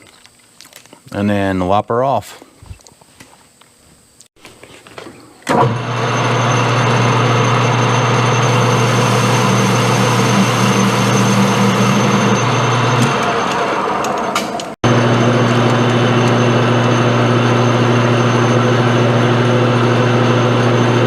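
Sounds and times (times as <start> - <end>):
lathe running: 5.5 - 21.0
low motor hum: 5.5 - 21.0.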